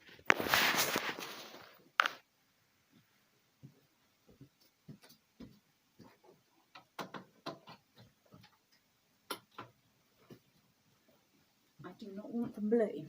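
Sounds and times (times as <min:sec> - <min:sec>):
small objects clicking and tapping: 0:06.7 - 0:10.4.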